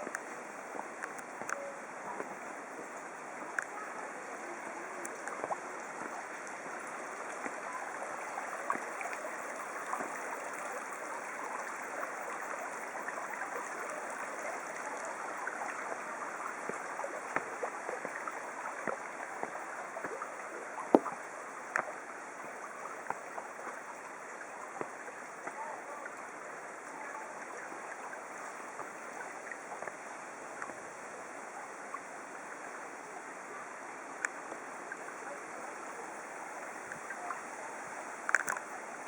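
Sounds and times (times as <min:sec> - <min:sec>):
small splashes and ticks: 0:00.0 - 0:02.4, 0:03.0 - 0:30.9, 0:38.2 - 0:38.9
stream water flowing: 0:00.0 - 0:39.0.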